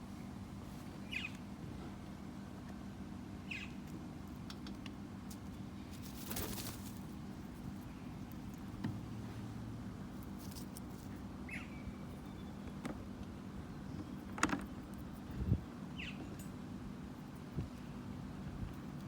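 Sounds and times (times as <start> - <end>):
steady low hum: 0.0 - 19.0
bird chirping: 1.1 - 1.4, 3.5 - 3.8, 11.5 - 12.7, 16.0 - 16.4.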